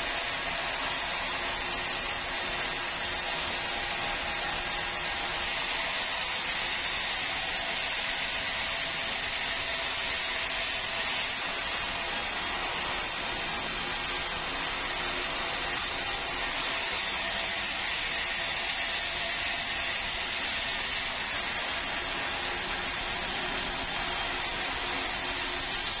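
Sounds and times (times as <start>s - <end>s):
sawmill saw hissing and whining: 0.0s - 26.0s.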